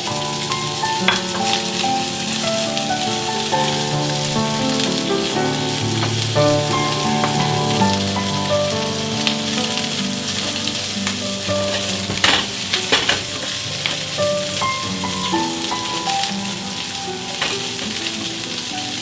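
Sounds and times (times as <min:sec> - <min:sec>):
rice sizzling in a hot pan: 0:00.0 - 0:19.0
spatula scraping pan: 0:10.3 - 0:18.5.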